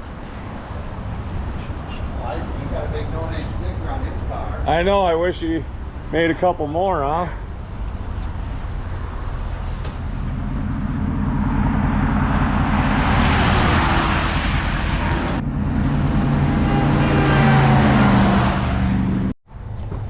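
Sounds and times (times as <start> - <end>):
tyre and wind noise: 0.0 - 6.4
car engine and road rumble: 0.0 - 20.0.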